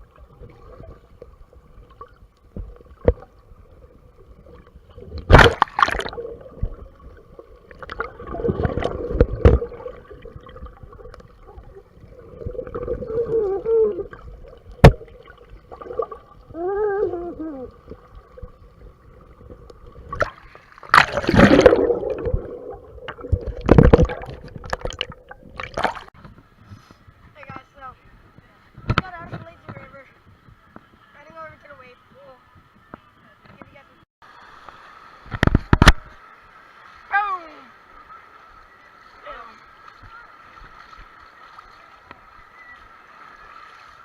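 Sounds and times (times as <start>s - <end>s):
muffled water sloshing: 0.0s - 26.4s.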